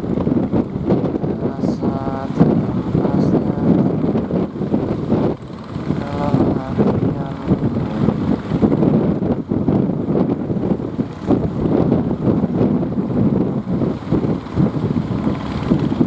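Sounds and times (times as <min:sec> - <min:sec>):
boat engines running: 0:00.0 - 0:16.0
wind buffeting microphone: 0:00.0 - 0:16.0.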